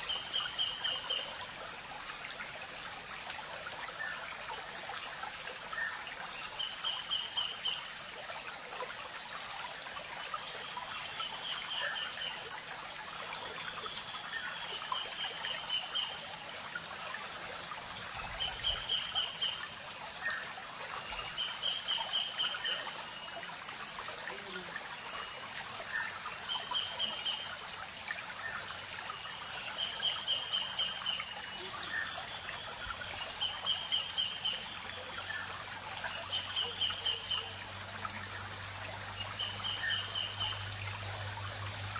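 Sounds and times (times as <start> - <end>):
stream trickling over stones: 0.0 - 41.9.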